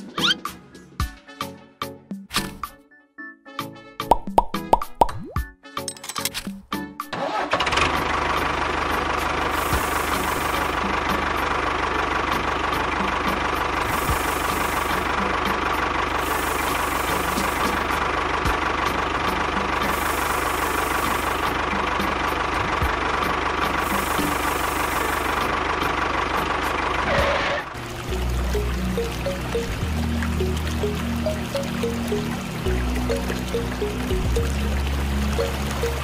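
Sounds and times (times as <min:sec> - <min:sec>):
tractor engine idling: 0:07.2 - 0:36.0.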